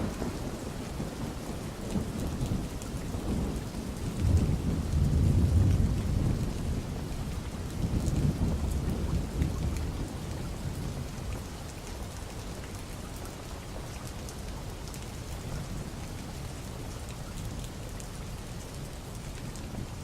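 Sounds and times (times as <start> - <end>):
low rumble of thunder: 0.0 - 14.0
steady rain falling: 0.0 - 20.0.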